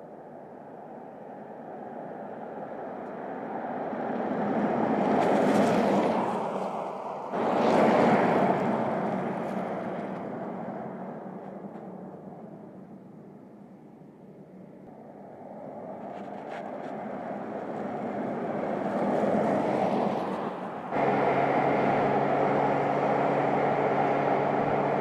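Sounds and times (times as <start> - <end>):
car driving past: 19.3 - 25.0.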